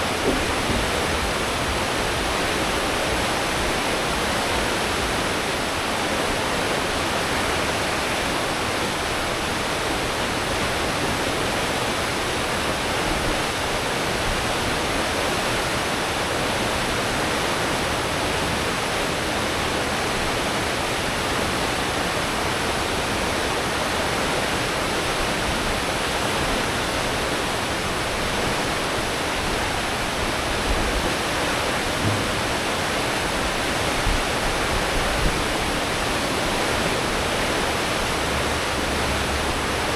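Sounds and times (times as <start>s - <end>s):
ship wake water roar: 0.0s - 39.9s
low thumps: 31.8s - 34.3s.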